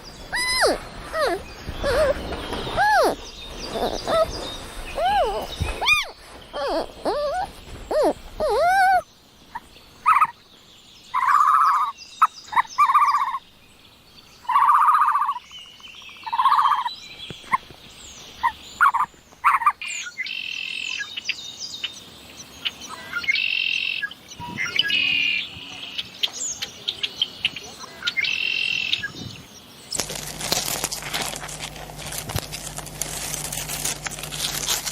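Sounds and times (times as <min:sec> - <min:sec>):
gliding animal calls: 0:00.0 - 0:09.0
high chirping calls: 0:00.0 - 0:10.4
short even-pitched animal calls: 0:00.3 - 0:02.2, 0:02.8 - 0:04.3, 0:05.0 - 0:09.0.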